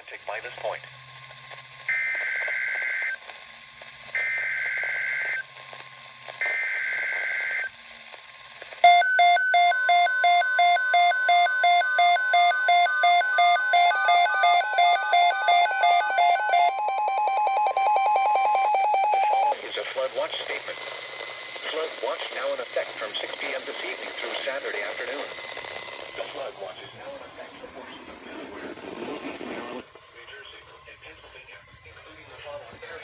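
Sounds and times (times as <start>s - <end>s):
radio hiss: 0.0s - 8.8s, 19.5s - 33.0s
digital data warble: 8.8s - 19.5s
electronic alert beeping: 8.8s - 19.5s
steady tone: 8.8s - 19.5s.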